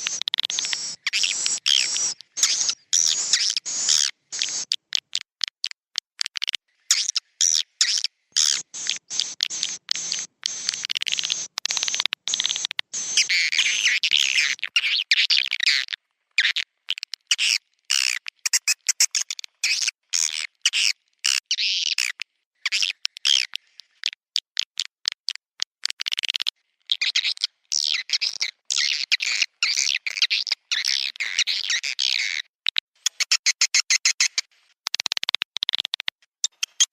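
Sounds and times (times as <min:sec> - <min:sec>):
swiftlets twittering: 0:08.5 - 0:14.0.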